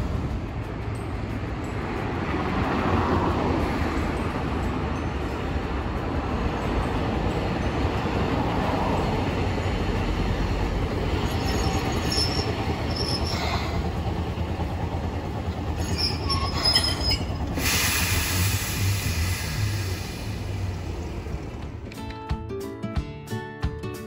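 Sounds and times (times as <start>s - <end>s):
streetcar running noise: 0.0s - 22.2s
steel wheels squealing on rails: 6.5s - 21.2s
high hiss: 17.6s - 20.8s.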